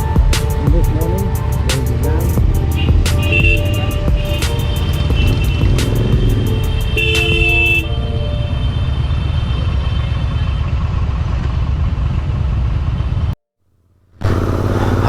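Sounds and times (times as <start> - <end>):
motorcycle engine running: 0.0 - 7.8, 14.2 - 15.0
road and wind noise: 0.0 - 13.4, 14.2 - 15.0.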